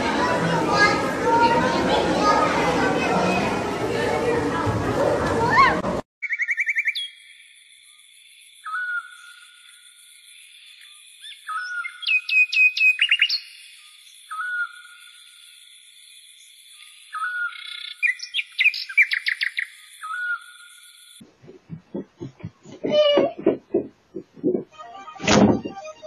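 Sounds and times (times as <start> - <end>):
bird chirps and trills: 6.2 - 21.2.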